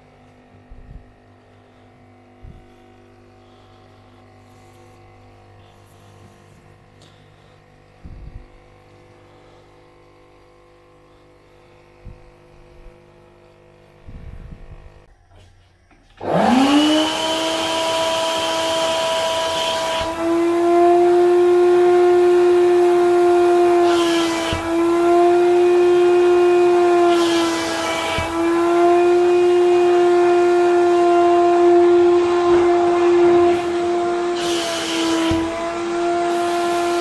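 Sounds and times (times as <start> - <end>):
vacuum cleaner motor whine: 0.0 - 37.0.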